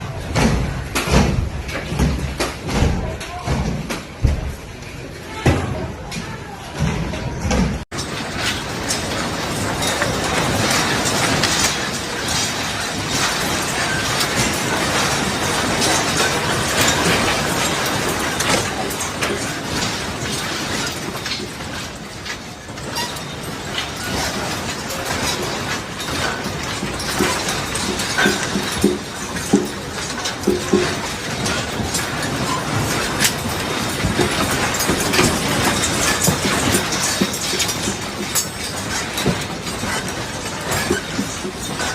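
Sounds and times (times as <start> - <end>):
steady rumbling: 0.0 - 20.7
loose objects rattling: 0.0 - 41.9.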